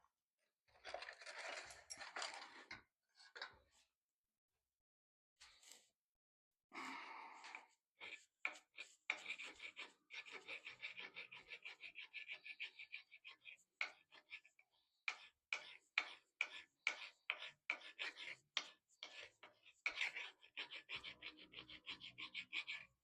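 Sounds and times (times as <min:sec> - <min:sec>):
file rasping on metal: 0:08.0 - 0:23.0.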